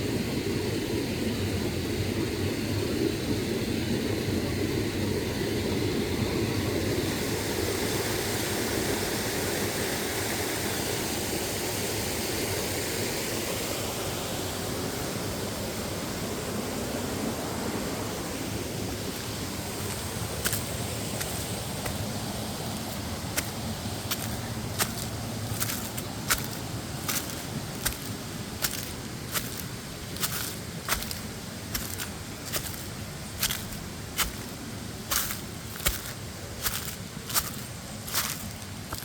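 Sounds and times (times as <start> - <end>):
waterfall rushing and splashing: 19.0 - 39.0.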